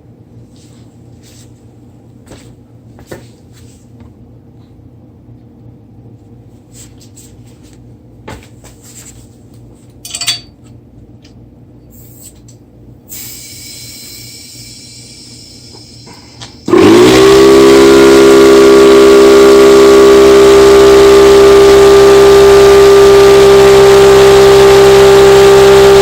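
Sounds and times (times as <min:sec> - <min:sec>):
compressed air hissing: 0:13.1 - 0:16.7.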